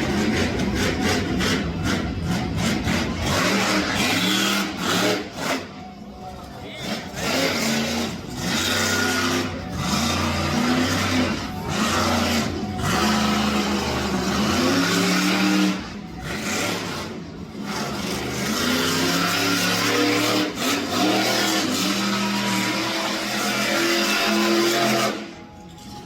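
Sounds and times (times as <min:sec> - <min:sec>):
truck engine revving hard: 0:00.0 - 0:06.0, 0:06.7 - 0:25.6.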